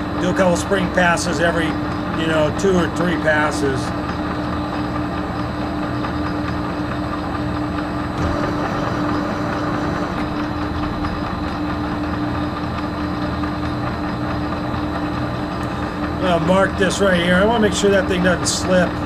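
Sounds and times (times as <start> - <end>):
metal lathe humming: 8.1 - 19.0.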